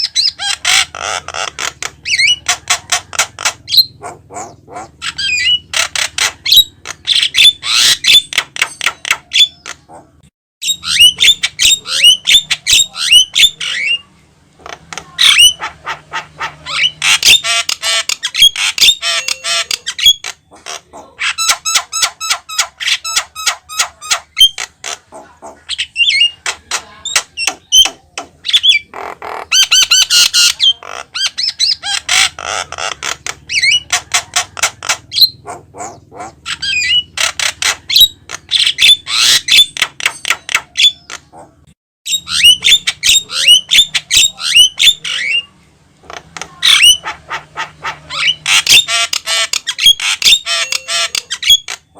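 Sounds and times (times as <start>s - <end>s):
bird chattering and whistling: 0.0s - 51.9s.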